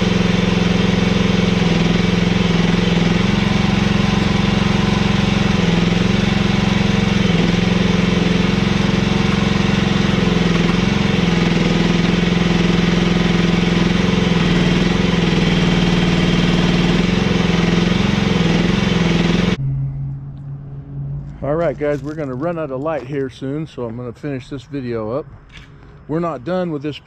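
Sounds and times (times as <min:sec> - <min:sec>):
mini excavator engine running: 0:00.0 - 0:19.6.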